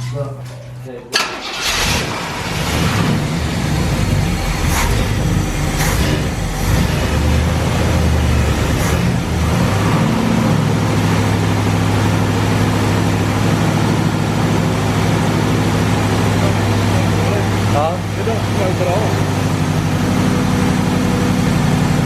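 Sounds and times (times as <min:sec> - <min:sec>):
car engine idling: 0:00.0 - 0:22.0
sharp engine clicks: 0:00.4 - 0:02.7.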